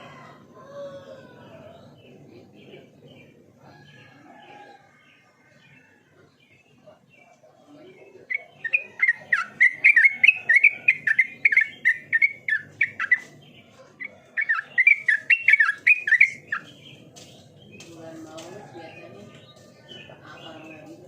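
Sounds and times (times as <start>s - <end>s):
bulbul singing chirpy notes: 8.2s - 13.6s, 14.3s - 17.0s.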